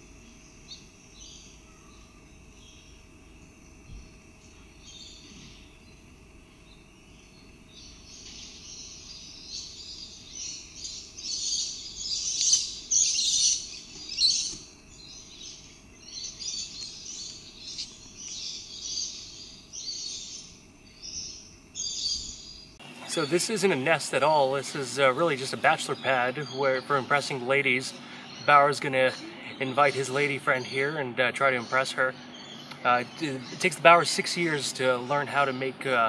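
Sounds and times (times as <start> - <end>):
faint high hum: 0.0 - 36.0
bird harsh rasping calls: 8.2 - 22.6.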